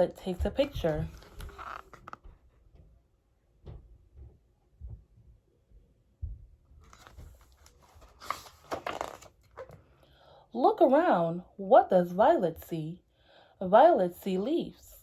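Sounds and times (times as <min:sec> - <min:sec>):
page turning rustle: 0:00.6 - 0:02.2, 0:06.8 - 0:09.8
soft knocks handling book: 0:06.8 - 0:09.8.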